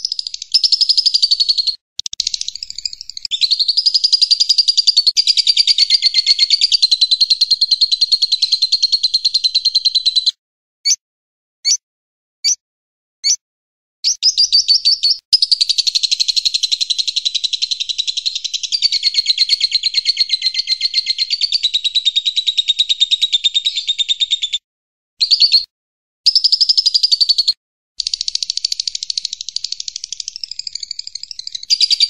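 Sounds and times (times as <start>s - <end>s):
songbird chirps and trills: 0.0s - 10.3s, 14.1s - 22.3s, 26.3s - 32.0s.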